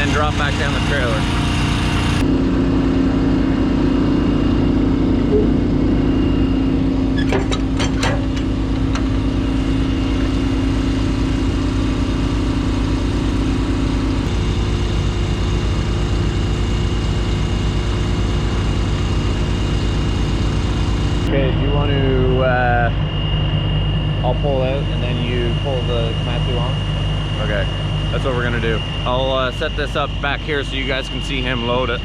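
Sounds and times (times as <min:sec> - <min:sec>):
diesel truck engine idling: 0:00.0 - 0:02.2.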